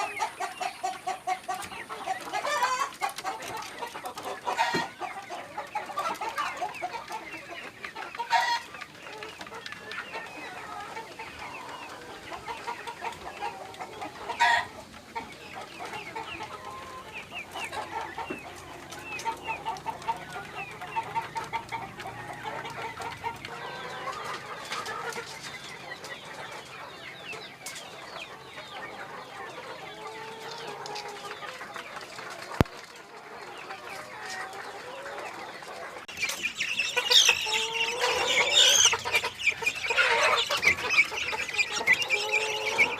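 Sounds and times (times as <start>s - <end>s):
chickens clucking and calling: 0.0s - 42.9s.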